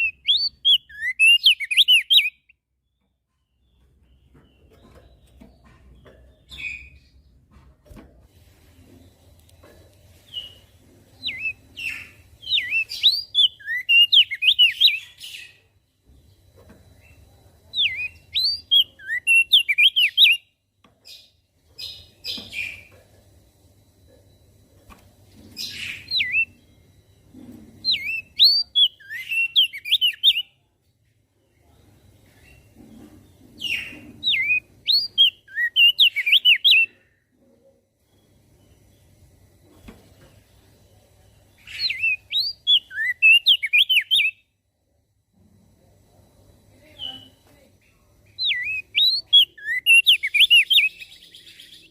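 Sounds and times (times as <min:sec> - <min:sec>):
bird whistling: 0:00.0 - 0:02.6, 0:11.2 - 0:15.2, 0:17.8 - 0:20.4, 0:25.6 - 0:26.6, 0:27.9 - 0:30.5, 0:33.7 - 0:36.9, 0:41.7 - 0:44.4, 0:48.4 - 0:51.9.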